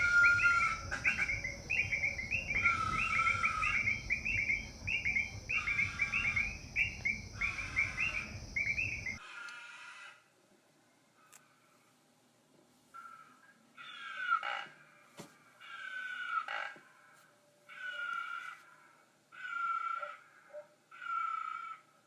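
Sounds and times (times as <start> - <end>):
chirping animal calls: 0.0 - 9.2
high insect hum: 0.0 - 9.2.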